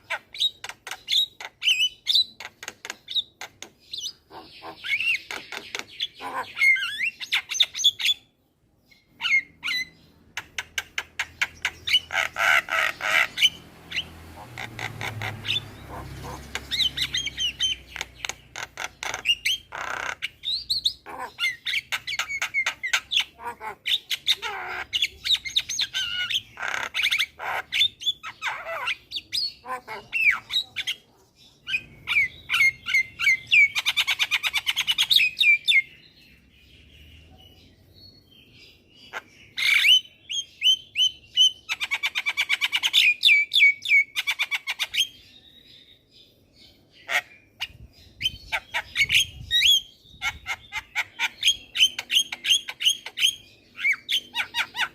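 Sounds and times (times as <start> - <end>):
bird singing whistles and squawks: 3.9 - 8.3, 39.1 - 45.6, 47.0 - 54.9.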